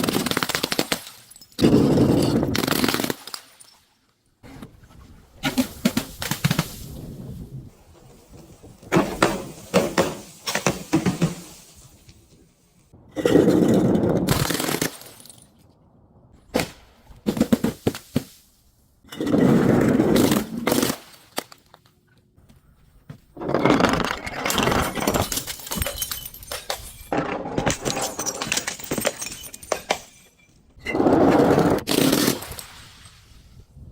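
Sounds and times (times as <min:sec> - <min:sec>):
sharp cracks: 0:00.0 - 0:01.2, 0:14.2 - 0:15.6
glass bottles crushed and breaking: 0:00.0 - 0:03.9, 0:13.2 - 0:15.6, 0:23.4 - 0:31.1.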